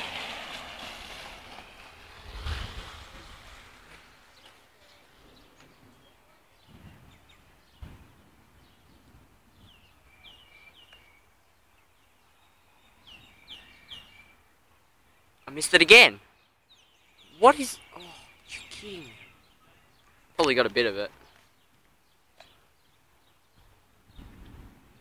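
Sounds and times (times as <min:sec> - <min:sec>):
wind buffeting microphone: 0:00.0 - 0:04.4, 0:05.2 - 0:10.5, 0:23.5 - 0:25.0.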